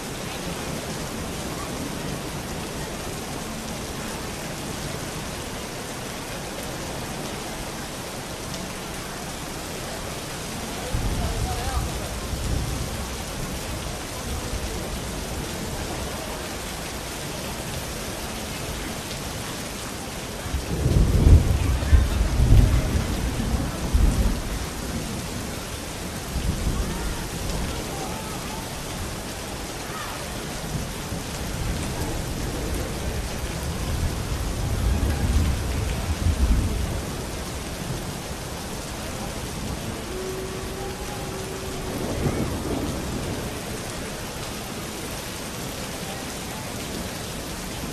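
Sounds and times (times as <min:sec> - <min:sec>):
steady rain falling: 0:00.0 - 0:47.9
thunder rumbling: 0:20.5 - 0:25.6, 0:30.4 - 0:44.0.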